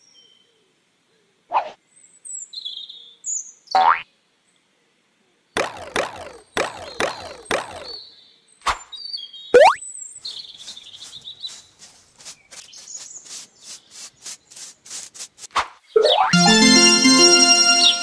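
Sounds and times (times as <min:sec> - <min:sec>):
brush scrubbing strokes: 0:11.0 - 0:15.6.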